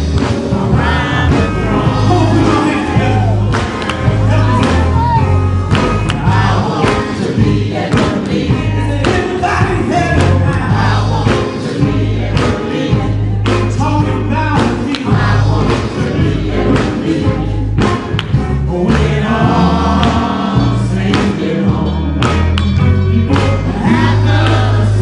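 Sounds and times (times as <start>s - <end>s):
heavy bass line: 0.0s - 25.0s
male group singing: 0.0s - 25.0s
steady beat: 0.0s - 25.0s.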